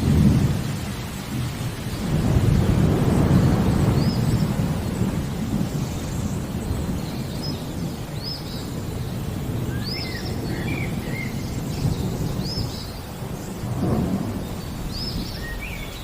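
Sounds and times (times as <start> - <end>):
steady rain: 0.0 - 16.0
thunder rumbling: 0.0 - 16.0
bird chirping: 5.6 - 16.0.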